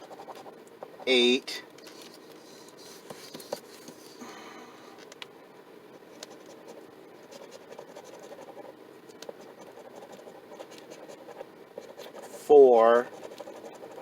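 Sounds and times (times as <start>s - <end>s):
scratching lottery ticket: 6.2s - 14.0s.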